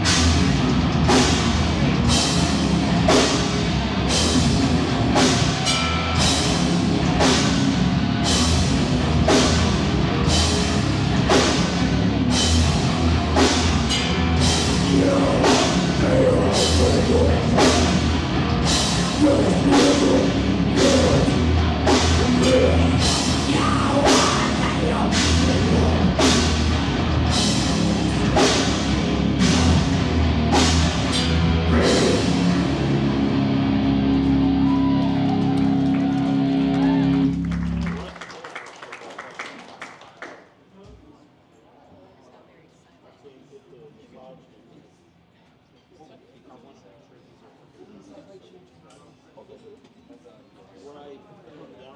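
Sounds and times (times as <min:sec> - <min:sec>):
pounding drums: 0:00.0 - 0:33.3
heavy rock band playing: 0:00.0 - 0:38.0.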